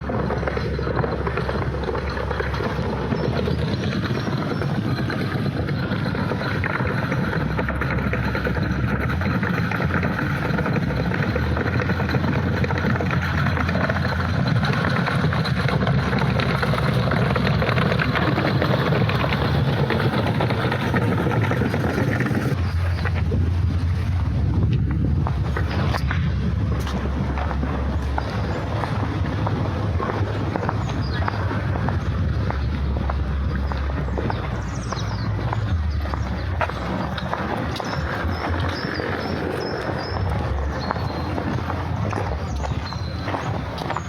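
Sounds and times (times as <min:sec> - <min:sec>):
low rumble: 0:00.0 - 0:44.0.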